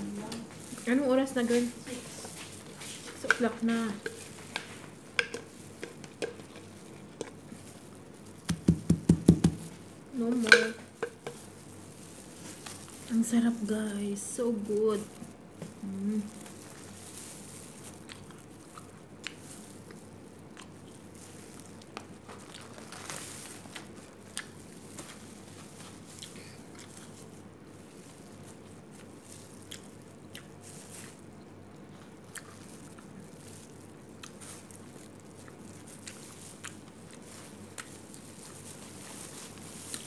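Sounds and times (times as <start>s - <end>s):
person chewing food: 2.2s - 8.8s, 15.2s - 40.0s.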